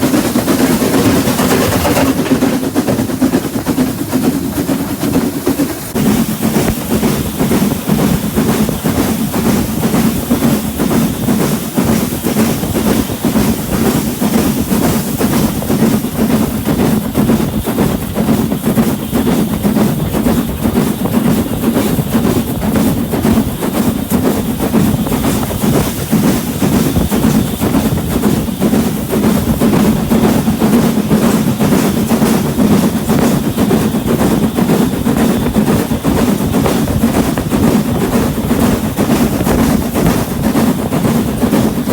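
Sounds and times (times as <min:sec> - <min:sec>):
train rumbling: 0:00.0 - 0:41.9
wheels clattering on rails: 0:00.0 - 0:41.9.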